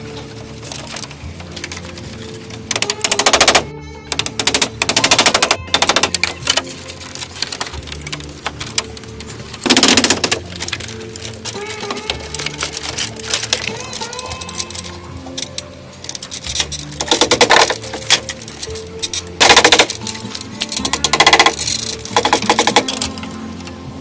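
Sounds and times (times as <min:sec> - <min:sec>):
background music: 0:00.0 - 0:24.0
very rapid tapping clicks: 0:02.7 - 0:03.6, 0:04.2 - 0:06.6.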